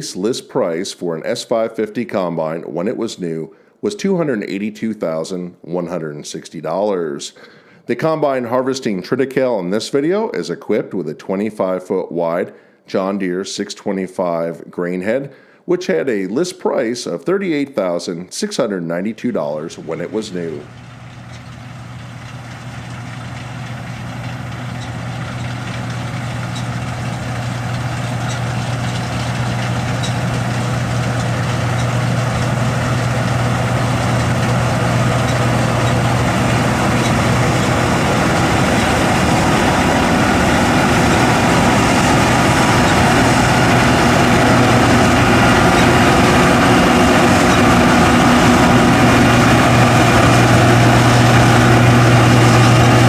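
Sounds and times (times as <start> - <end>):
combine engine hum: 19.7 - 53.0
machinery noise: 19.7 - 53.0.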